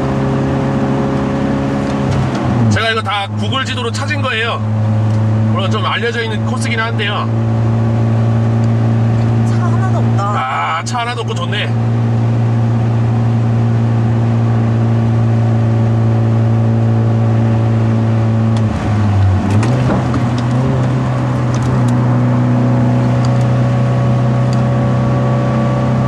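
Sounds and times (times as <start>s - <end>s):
car engine under load from inside: 0.0s - 26.0s.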